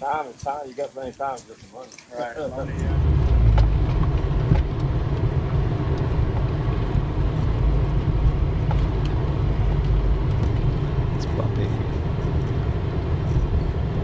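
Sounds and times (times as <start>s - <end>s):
vehicle rumble on rough ground: 2.2s - 14.0s
light rattles and knocks: 2.7s - 12.6s.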